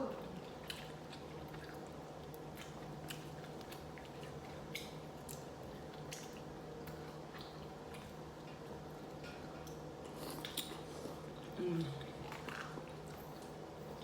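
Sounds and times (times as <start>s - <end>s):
wet chewing sounds: 0.0s - 14.0s.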